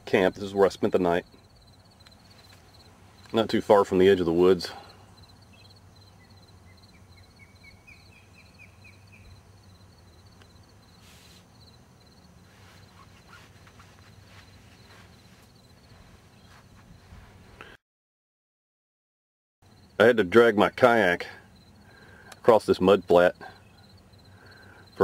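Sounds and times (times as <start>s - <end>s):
insect chirping in quick pulses: 1.3s - 3.3s, 4.8s - 16.8s, 21.6s - 22.2s, 23.6s - 25.0s
soft rustles and clicks: 2.0s - 3.4s, 12.5s - 17.6s.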